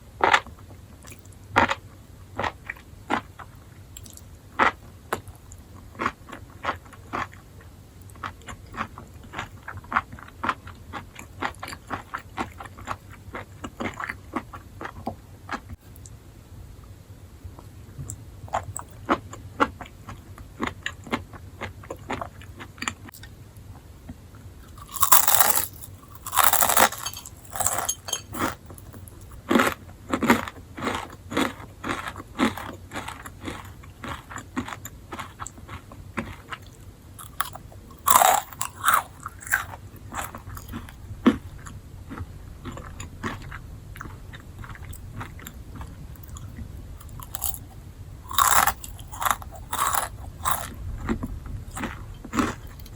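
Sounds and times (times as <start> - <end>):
person chewing crunchy mushrooms: 2.4 - 7.5, 24.6 - 52.9.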